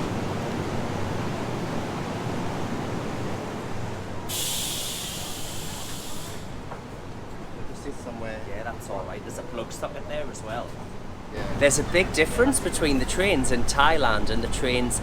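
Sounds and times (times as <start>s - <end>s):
train hum and rumble: 0.0s - 15.0s
air release hiss: 4.3s - 6.6s.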